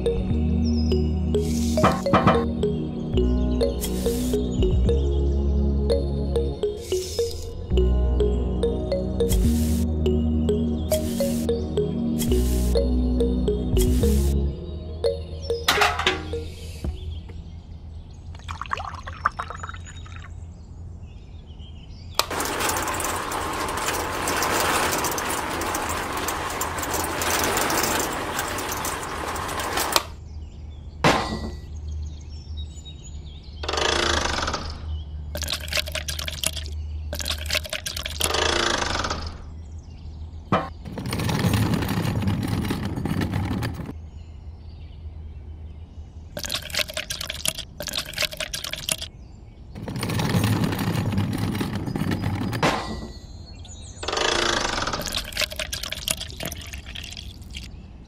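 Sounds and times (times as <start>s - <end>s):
water pouring and sloshing: 18.4s - 20.3s, 35.4s - 38.3s, 46.4s - 49.1s, 55.0s - 57.7s.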